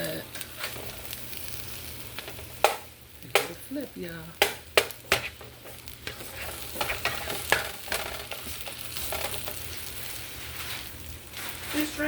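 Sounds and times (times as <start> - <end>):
omelet sizzling in a frying pan: 0.0 - 12.0
spatula scraping and tapping pan: 4.4 - 11.6.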